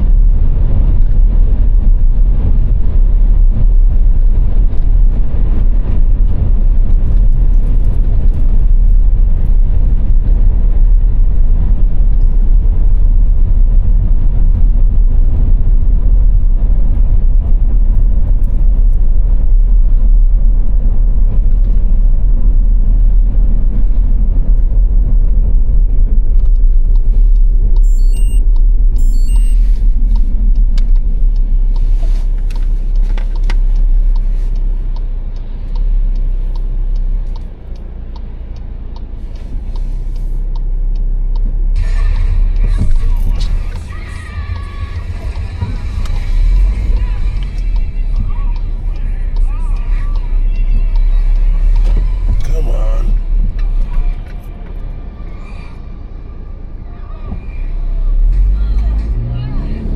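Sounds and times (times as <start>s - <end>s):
car road and engine noise: 0.0s - 59.9s
high beeping tones: 27.8s - 29.7s.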